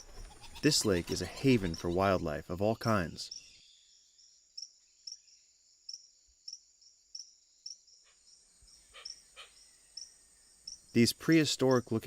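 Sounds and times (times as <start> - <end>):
insect chirping: 2.9 - 11.1.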